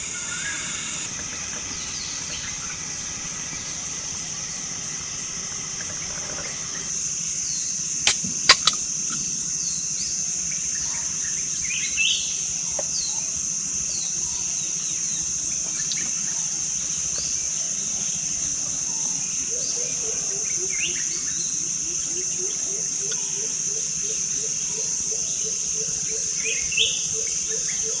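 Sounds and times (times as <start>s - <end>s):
bird call: 0.0s - 6.9s
sharp clicks: 0.0s - 6.9s, 8.1s - 8.8s
falling chirps: 0.0s - 7.0s
high-pitched insect drone: 0.0s - 7.0s.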